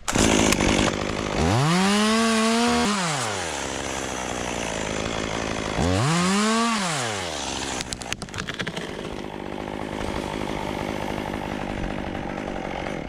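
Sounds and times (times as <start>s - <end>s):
chainsaw idling: 0.0s - 13.0s
tree limb cracking: 5.2s - 13.0s.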